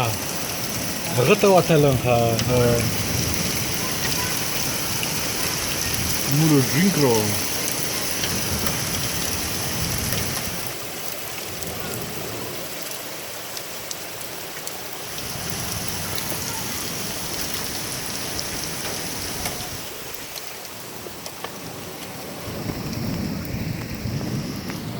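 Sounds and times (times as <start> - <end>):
heavy rain splashing: 0.0 - 24.9.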